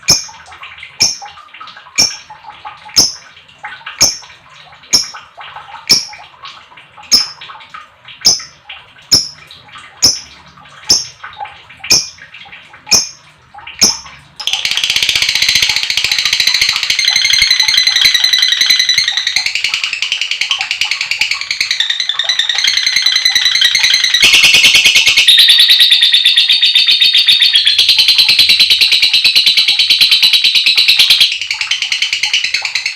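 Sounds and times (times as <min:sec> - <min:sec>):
lovebird chirping and chattering: 0:02.0 - 0:02.3, 0:04.9 - 0:05.2, 0:05.9 - 0:06.2, 0:07.1 - 0:07.4, 0:11.9 - 0:12.2, 0:12.9 - 0:13.2, 0:13.8 - 0:32.9.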